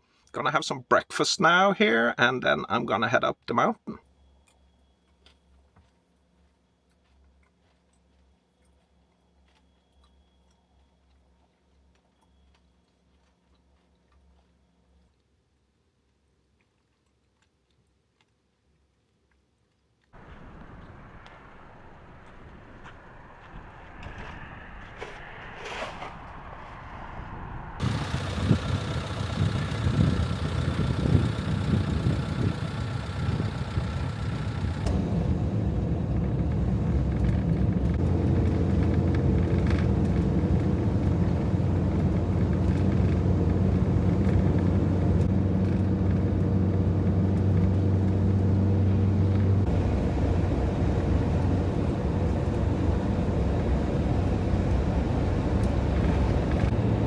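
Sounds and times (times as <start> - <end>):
van engine and road noise drone: 20.2 - 57.0
van rumbling: 20.2 - 57.0.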